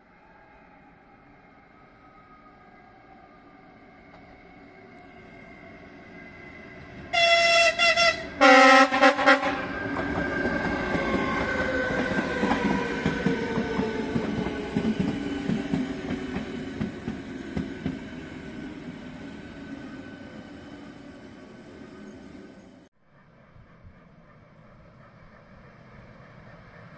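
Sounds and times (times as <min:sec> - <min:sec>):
train horn blasts: 0:07.1 - 0:09.8.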